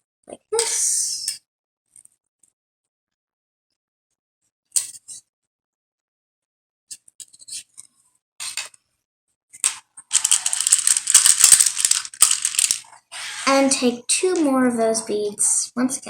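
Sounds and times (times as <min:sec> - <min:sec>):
beads and wire clicking: 0:09.6 - 0:12.8
plastic beads rattling: 0:09.6 - 0:12.8.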